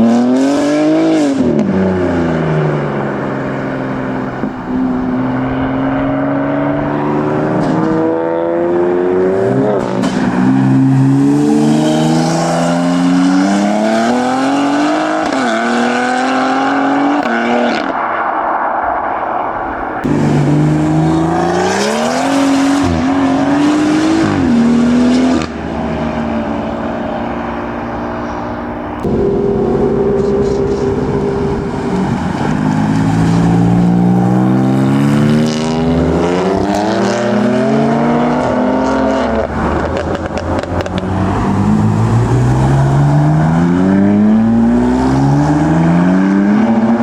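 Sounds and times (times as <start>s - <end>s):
car engines accelerating hard: 0.0s - 47.0s.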